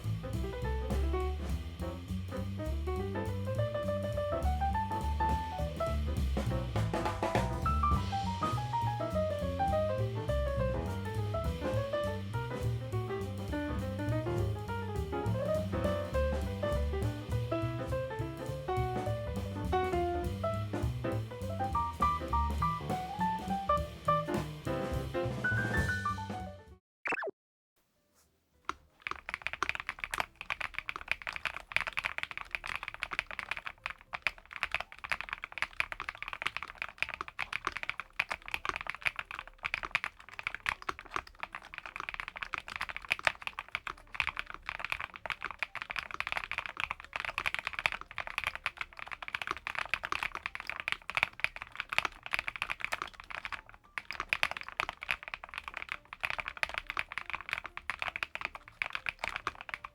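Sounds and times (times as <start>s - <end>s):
fast typing on mechanical keyboard: 6.8s - 9.9s, 13.4s - 19.9s, 28.7s - 59.9s.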